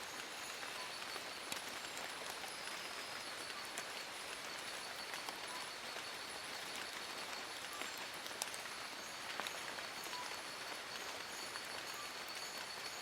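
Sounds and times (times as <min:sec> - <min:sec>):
rain falling on leaves: 0:00.0 - 0:13.0.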